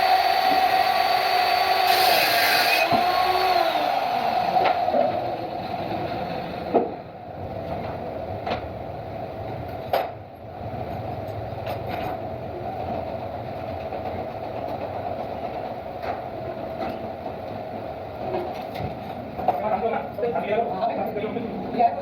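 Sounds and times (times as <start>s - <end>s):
workshop machinery humming: 0.0s - 9.7s.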